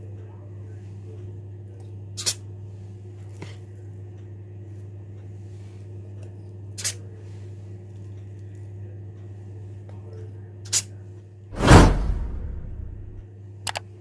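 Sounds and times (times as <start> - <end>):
low hum: 11.6 - 13.2.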